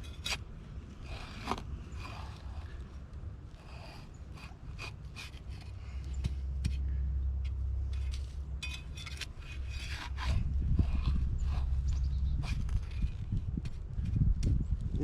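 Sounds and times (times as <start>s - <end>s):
hand tool scraping soil: 0.0s - 6.8s, 7.9s - 14.2s
low rumble: 5.5s - 15.0s.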